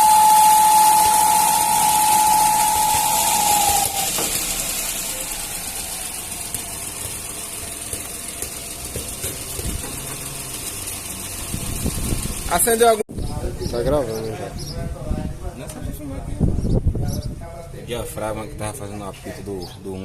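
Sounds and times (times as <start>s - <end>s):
high-pitched whistle: 0.0s - 6.1s
car engine running: 0.0s - 13.0s.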